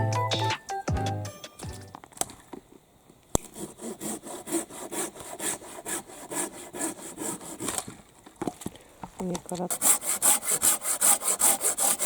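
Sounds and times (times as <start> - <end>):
hand saw cutting wood: 3.4 - 8.0, 9.7 - 12.0.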